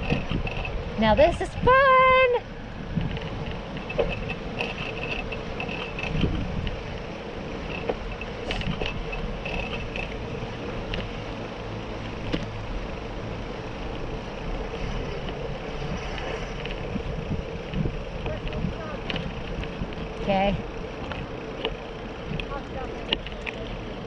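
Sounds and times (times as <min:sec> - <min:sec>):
bicycle tyres rolling: 0:00.0 - 0:24.0.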